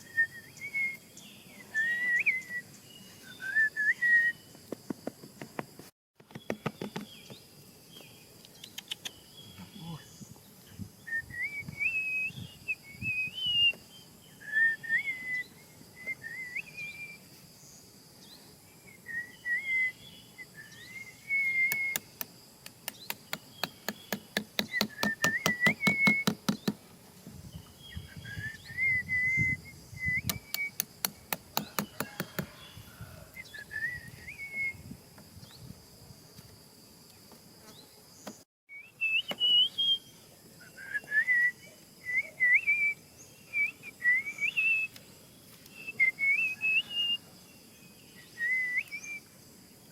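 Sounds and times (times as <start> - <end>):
wavering bird-like whistles: 0.0 - 4.5, 14.4 - 17.2, 19.0 - 22.1, 24.6 - 26.4, 27.9 - 30.8, 31.6 - 34.9, 38.7 - 44.9, 45.7 - 47.2, 48.2 - 49.3.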